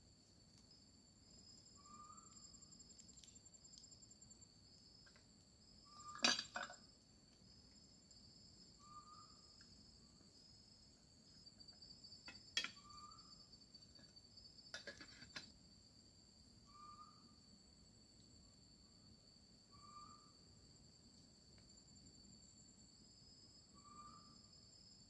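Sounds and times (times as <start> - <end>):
night insects trilling: 0.0 - 25.0.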